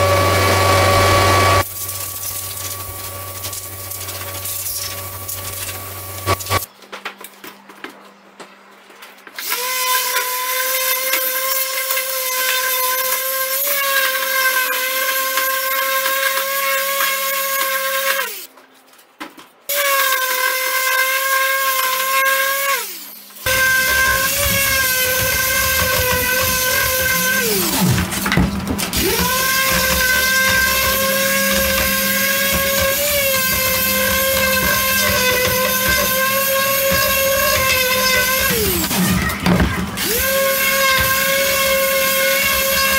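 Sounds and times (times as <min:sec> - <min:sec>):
power tool high whine: 0:00.0 - 0:06.6, 0:21.8 - 0:42.9.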